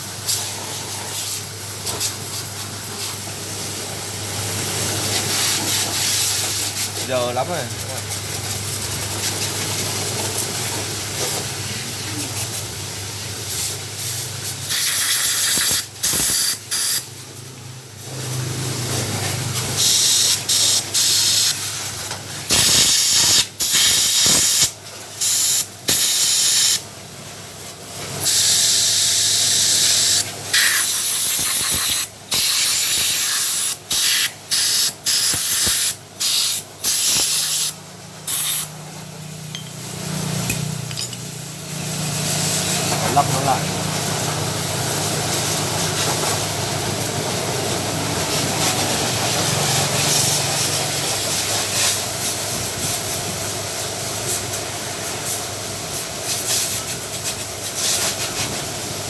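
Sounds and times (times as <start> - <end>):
compressed air hissing: 5.1 - 7.1, 13.4 - 17.1, 19.7 - 21.9, 22.5 - 26.8, 28.2 - 38.7.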